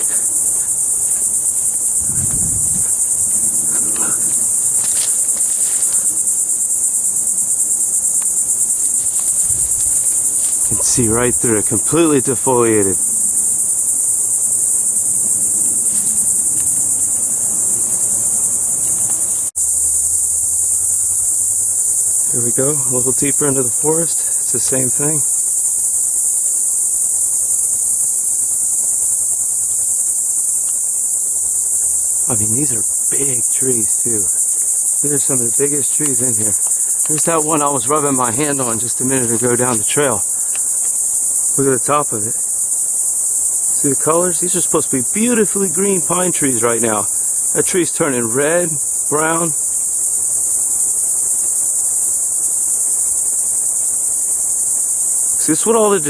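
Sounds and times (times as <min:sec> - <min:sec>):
faint rustling: 0:00.0 - 0:20.1, 0:30.6 - 0:48.1
crickets chirping: 0:00.0 - 0:56.0
high-pitched insect chorus: 0:00.0 - 0:56.0.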